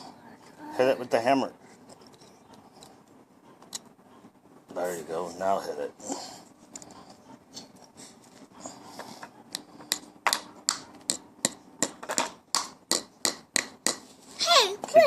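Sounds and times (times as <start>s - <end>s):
hammer striking nail: 9.9s - 14.0s.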